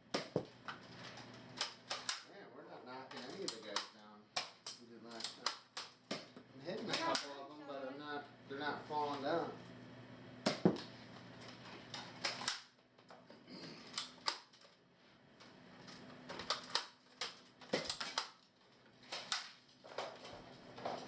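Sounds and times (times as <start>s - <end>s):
toy dart guns firing: 0.1s - 0.5s, 1.6s - 2.3s, 3.2s - 7.4s, 10.4s - 10.9s, 11.9s - 12.8s, 13.9s - 14.6s, 16.3s - 19.6s
darts hitting targets: 0.1s - 0.6s, 1.6s - 2.3s, 3.5s - 7.4s, 10.4s - 11.0s, 16.3s - 18.4s.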